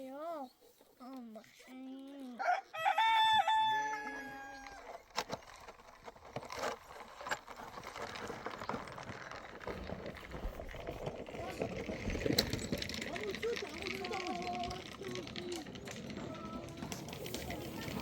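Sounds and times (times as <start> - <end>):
rooster crowing: 2.4 - 4.9.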